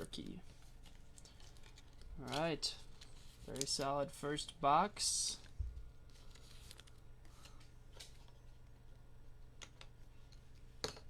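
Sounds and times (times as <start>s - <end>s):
packaging being handled: 0.0s - 4.5s
trading cards rustling: 0.0s - 8.8s.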